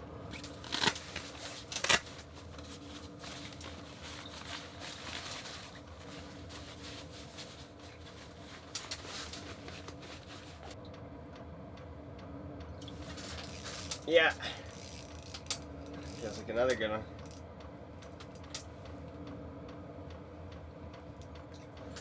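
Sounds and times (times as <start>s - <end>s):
steady low hum: 0.0s - 22.0s
fishing gear rustling and clicking: 0.3s - 10.8s, 13.0s - 16.4s.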